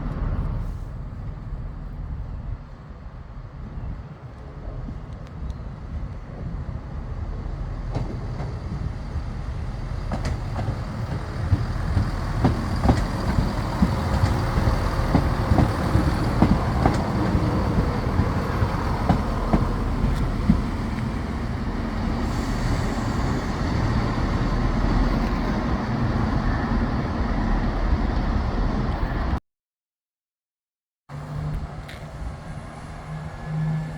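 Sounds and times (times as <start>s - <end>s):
diesel train rumbling: 0.0s - 29.4s
train wheels clicking over rail joints: 7.9s - 25.7s.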